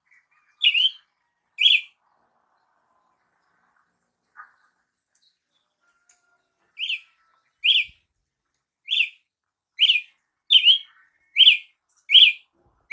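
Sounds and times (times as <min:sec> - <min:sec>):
bird calling sharp notes: 0:06.8 - 0:08.0, 0:09.8 - 0:12.4.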